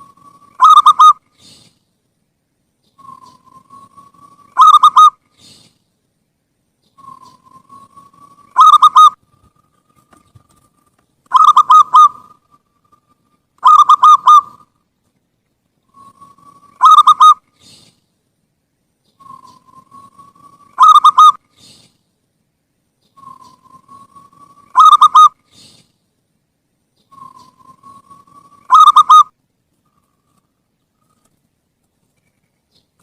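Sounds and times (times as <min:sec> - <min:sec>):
dove cooing: 0:00.0 - 0:01.6, 0:03.0 - 0:05.6, 0:07.0 - 0:14.8, 0:15.9 - 0:17.9, 0:19.2 - 0:21.8, 0:23.2 - 0:25.7, 0:27.1 - 0:29.3.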